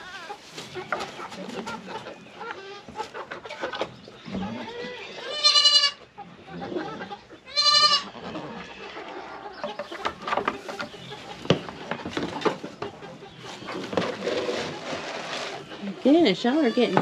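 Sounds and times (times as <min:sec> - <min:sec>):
goat bleating: 0:04.4 - 0:06.1, 0:07.5 - 0:08.4.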